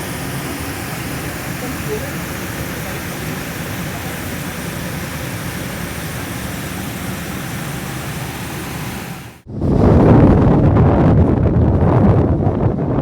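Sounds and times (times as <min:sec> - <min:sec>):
steady rushing noise: 0:00.0 - 0:13.0
wind buffeting microphone: 0:00.0 - 0:13.0.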